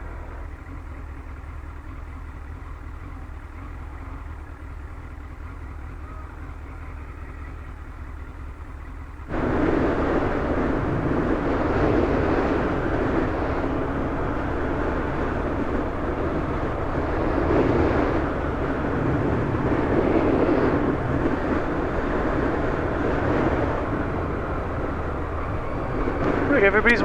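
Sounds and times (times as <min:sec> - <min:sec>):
motorcycle engine running: 0:00.0 - 0:27.0
wind rushing over microphone: 0:09.3 - 0:27.0.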